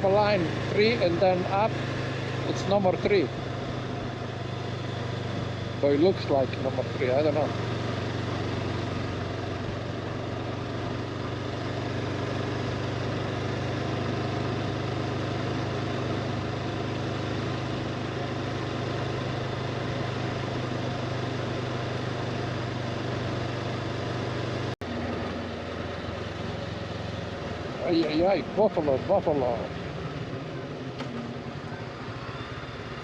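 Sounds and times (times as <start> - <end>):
motorcycle engine running: 0.0 - 33.0
road and wind noise: 0.0 - 33.0.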